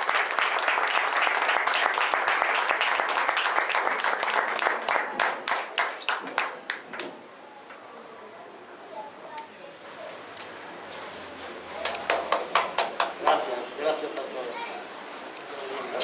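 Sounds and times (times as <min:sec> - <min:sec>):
group applauding: 0:00.0 - 0:07.2, 0:11.6 - 0:13.7.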